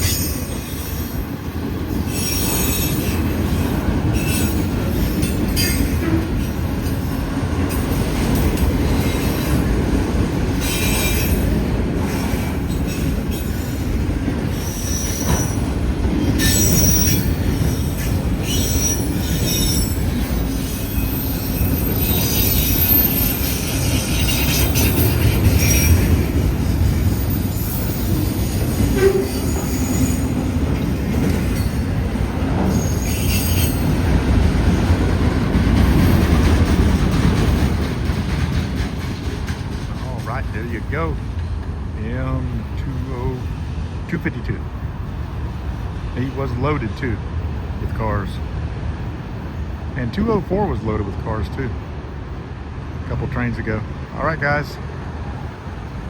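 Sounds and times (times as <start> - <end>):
train wheels squealing: 0.0 - 9.8, 10.5 - 34.8
freight train rumbling past: 0.0 - 56.0.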